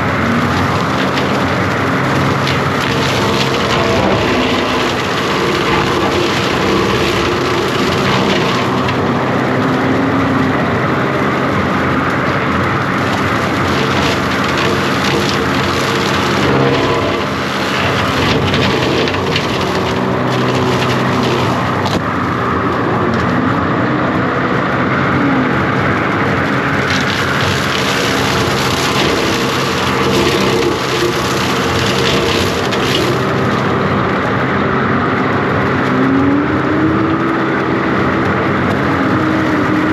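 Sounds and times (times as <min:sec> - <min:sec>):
diesel engine lugging under load: 0:00.0 - 0:39.9
hydraulic cutter working through brush: 0:00.0 - 0:39.9
wood and branches snapping: 0:00.2 - 0:09.3, 0:12.8 - 0:22.1, 0:26.7 - 0:33.8.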